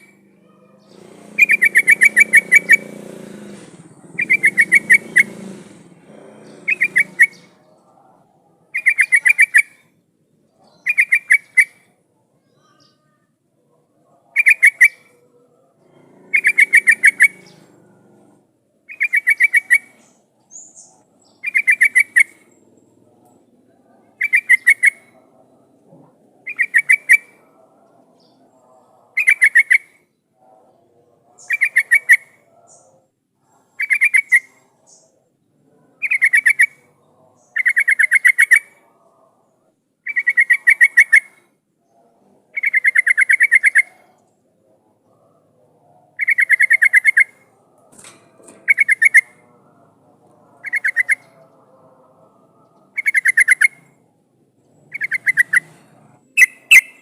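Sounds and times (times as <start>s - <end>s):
bird chattering calls: 0.0s - 7.9s, 8.7s - 9.8s, 10.6s - 11.8s, 14.4s - 15.1s, 15.9s - 18.3s, 18.9s - 22.7s, 24.2s - 25.2s, 26.4s - 27.5s, 31.4s - 32.8s, 33.5s - 35.1s, 36.0s - 38.9s, 40.1s - 41.4s, 42.6s - 44.1s, 46.2s - 51.6s, 52.3s - 53.9s, 54.8s - 57.0s.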